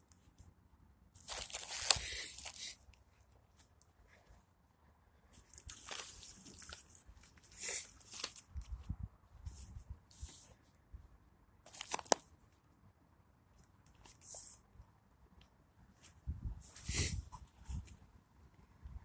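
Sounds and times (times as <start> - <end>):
short rustles and crunches: 1.2 - 2.8, 5.4 - 8.8.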